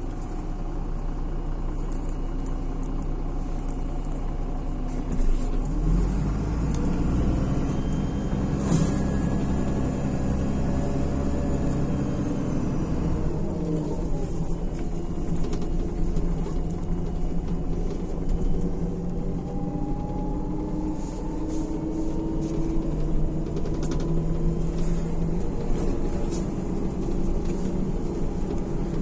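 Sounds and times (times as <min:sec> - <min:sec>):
bus diesel engine running: 0:00.0 - 0:29.0
road noise: 0:01.7 - 0:29.0.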